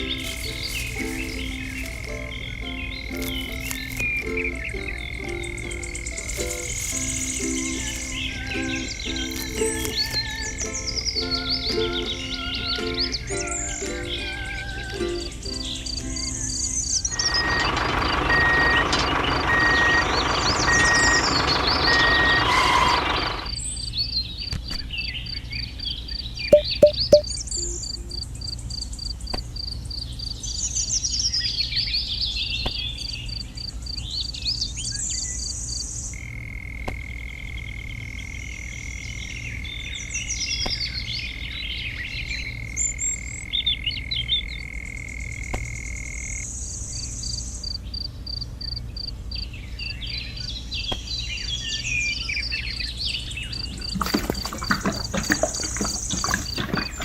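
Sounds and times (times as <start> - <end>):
birds chirping: 0.0 - 12.3, 49.5 - 57.0
insect ticking rapidly: 6.1 - 8.3
high insect whine: 6.1 - 10.2.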